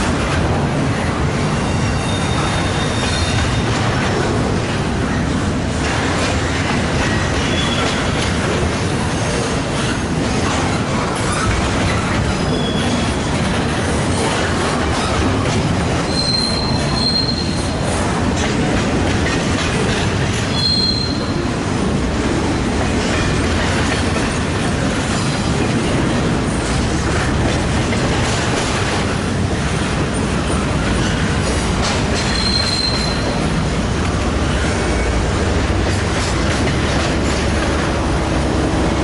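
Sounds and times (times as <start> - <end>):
train wheels rumbling on rail: 0.0 - 39.0
high wheel squeals: 1.6 - 3.8, 12.4 - 13.2, 16.1 - 17.8, 20.5 - 21.4, 32.2 - 33.5.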